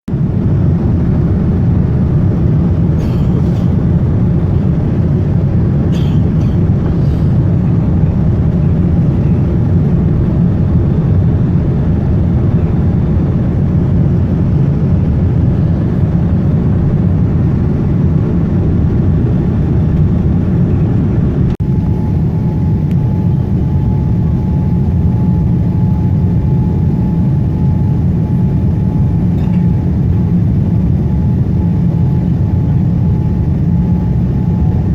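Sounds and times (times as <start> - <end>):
airliner cabin engine drone: 0.1 - 34.9.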